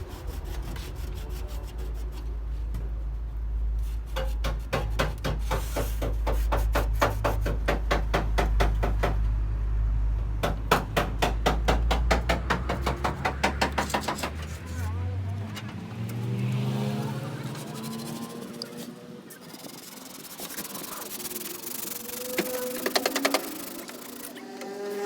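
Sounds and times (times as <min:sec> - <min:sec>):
hand sanding metal casing: 0:00.0 - 0:02.2, 0:03.8 - 0:09.2, 0:10.7 - 0:14.9, 0:17.4 - 0:25.0.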